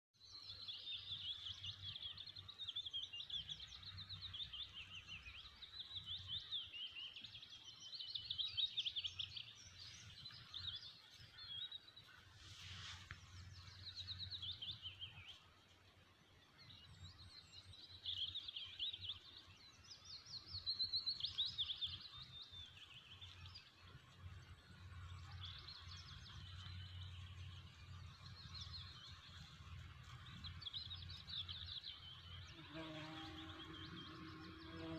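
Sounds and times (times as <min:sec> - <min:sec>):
small birds chirping: 0:00.2 - 0:34.9
rustling: 0:12.2 - 0:13.8.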